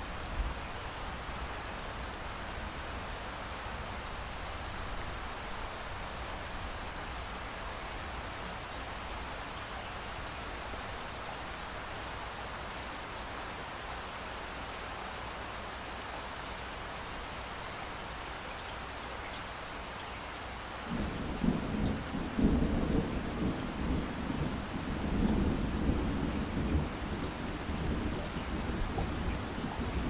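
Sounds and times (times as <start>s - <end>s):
steady rain hiss: 0.0s - 30.0s
rolling thunder rumble: 20.9s - 30.0s.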